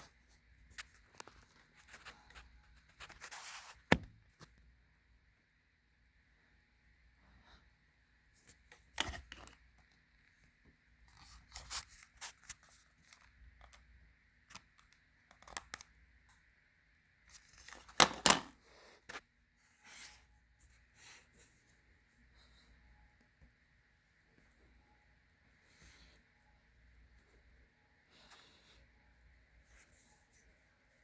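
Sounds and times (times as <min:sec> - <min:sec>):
faint steady hum: 0:00.0 - 0:31.0
clicks and rustling handling noises: 0:08.4 - 0:10.4.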